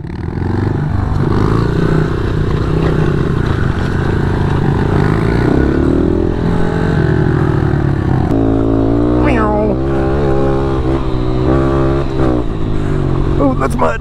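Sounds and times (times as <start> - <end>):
pit bike engine revving: 0.0 - 14.0.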